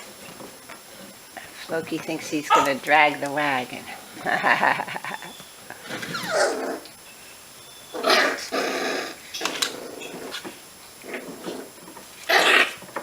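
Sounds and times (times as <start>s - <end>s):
puppies growling and yipping: 5.0s - 7.0s, 7.9s - 12.9s.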